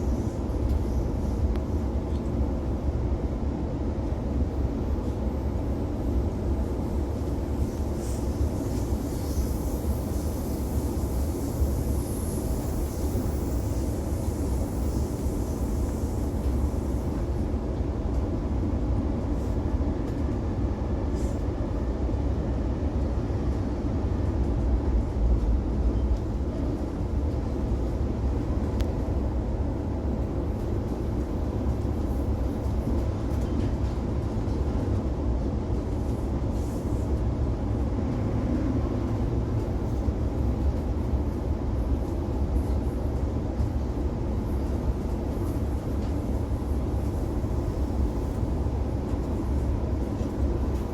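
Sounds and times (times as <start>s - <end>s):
train wheels rumbling on rail: 0.0s - 50.9s.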